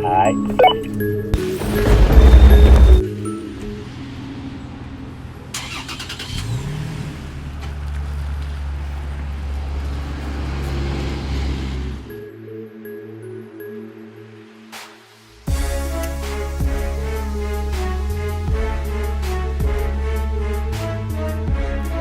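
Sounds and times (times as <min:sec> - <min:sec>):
truck engine starting and idling: 0:00.9 - 0:03.0, 0:04.0 - 0:12.1.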